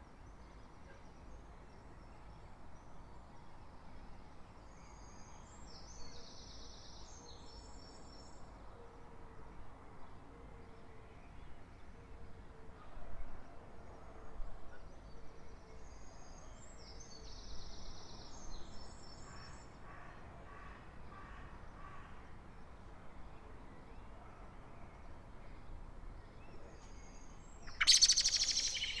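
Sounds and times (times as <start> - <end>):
songbird singing: 26.9 - 29.0
distant environmental hum: 27.7 - 29.0.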